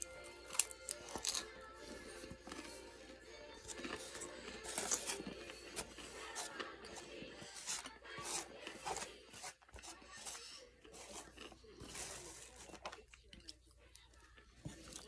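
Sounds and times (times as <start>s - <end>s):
taco shell crunching being chewed: 0.0s - 8.0s, 11.0s - 15.0s.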